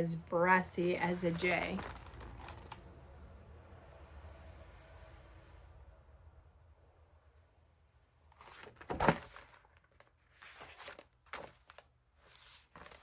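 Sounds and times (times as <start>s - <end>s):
paper pages rustling: 0.7s - 2.8s, 8.4s - 13.0s.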